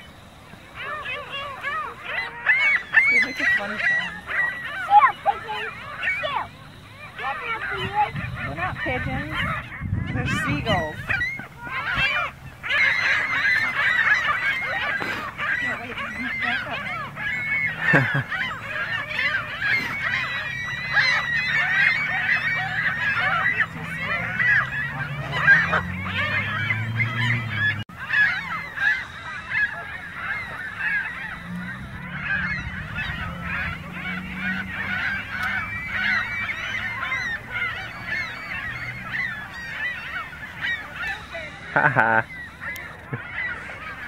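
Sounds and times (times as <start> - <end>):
geese honking: 0.0 - 44.0
low drone rising in pitch: 15.8 - 39.9.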